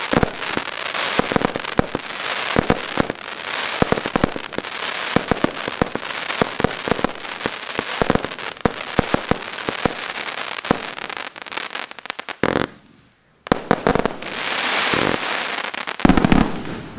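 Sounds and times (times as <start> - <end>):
fireworks sharp bangs: 0.0 - 11.6, 12.4 - 16.9
fireworks crackling hiss: 0.0 - 16.9.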